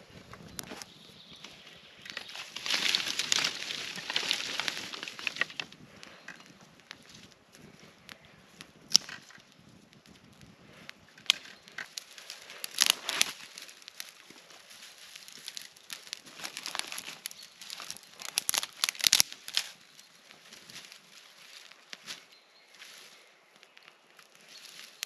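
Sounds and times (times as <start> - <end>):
material rustling and crackling: 2.2 - 5.6, 11.8 - 19.8.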